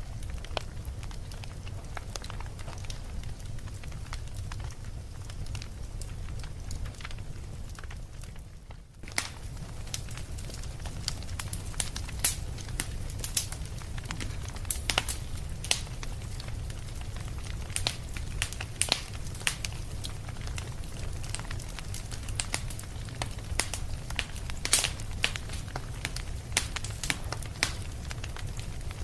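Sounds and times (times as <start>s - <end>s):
fire crackling: 0.0s - 29.0s
sharp pops: 24.6s - 25.8s.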